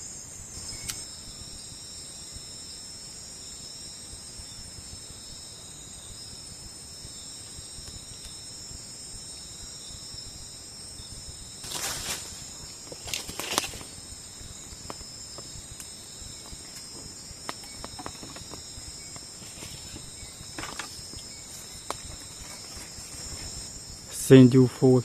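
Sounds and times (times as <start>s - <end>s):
crickets and insects chirping: 0.0s - 25.0s
rustling noise: 11.6s - 15.4s, 16.4s - 23.8s.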